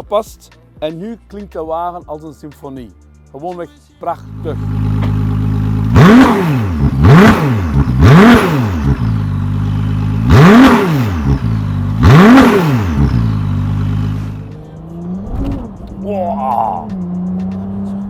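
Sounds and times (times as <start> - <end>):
sports car engine revving: 4.2 - 16.0, 16.9 - 18.0.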